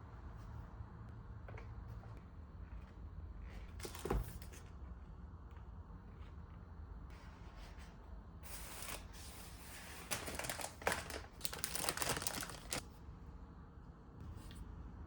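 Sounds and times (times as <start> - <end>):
plastic crinkling and rustling: 10.0 - 12.8.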